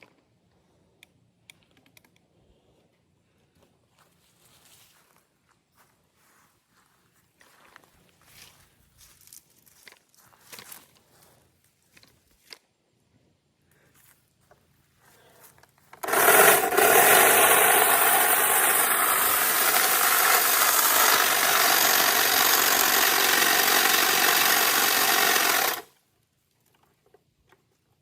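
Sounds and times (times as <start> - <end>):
power tool running: 16.0 - 25.9.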